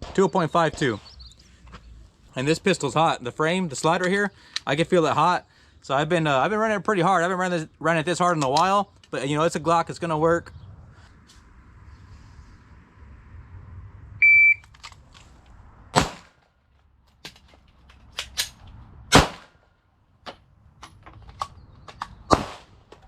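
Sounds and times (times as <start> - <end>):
shot timer beep: 14.2 - 14.6
loud pistol shots: 15.9 - 16.4, 19.1 - 19.6, 22.3 - 22.8.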